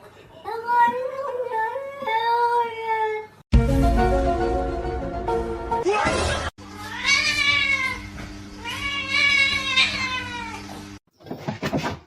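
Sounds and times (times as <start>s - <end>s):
cat meowing: 6.8s - 10.7s.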